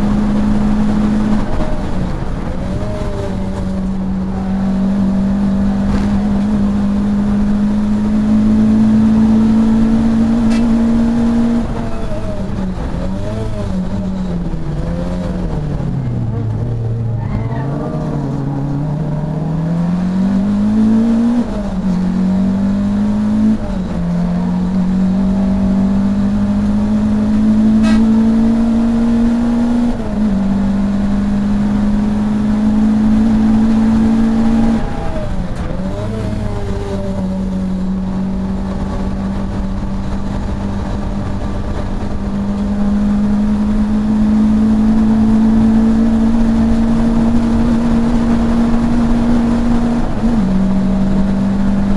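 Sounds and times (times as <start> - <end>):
race car engine revving: 0.0 - 51.9.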